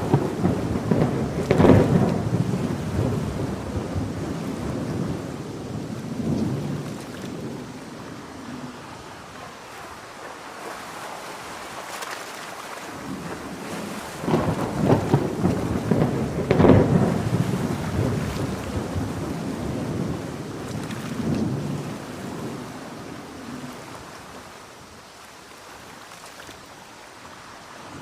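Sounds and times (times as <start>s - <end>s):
crackling thunder peal: 0.0s - 9.3s, 13.0s - 23.9s
thunder rumbling: 0.0s - 10.2s, 13.0s - 24.4s
heavy rain falling: 0.0s - 25.9s, 26.6s - 28.0s.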